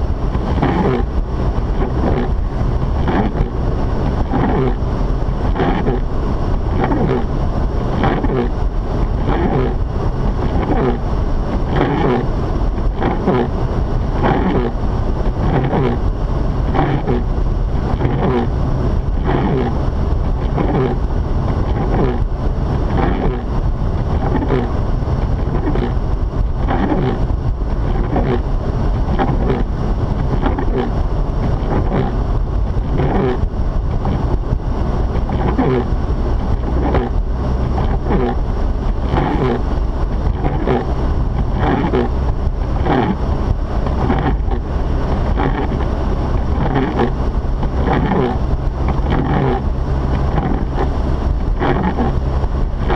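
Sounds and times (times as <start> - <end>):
car interior driving noise: 0.0 - 52.9.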